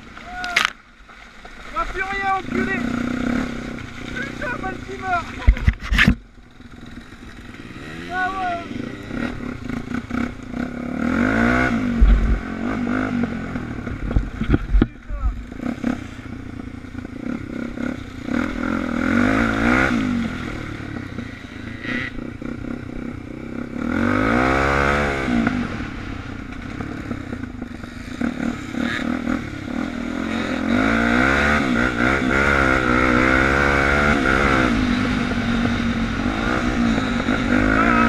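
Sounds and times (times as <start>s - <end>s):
bike rattling over rough ground: 0.0s - 23.8s, 26.2s - 31.0s
motorcycle engine revving: 1.5s - 38.0s.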